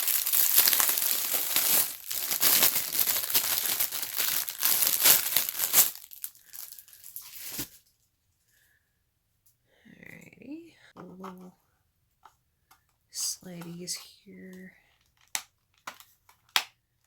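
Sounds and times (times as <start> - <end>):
packaging tearing and crinkling: 0.0 - 7.8
handling rustles: 0.0 - 7.9.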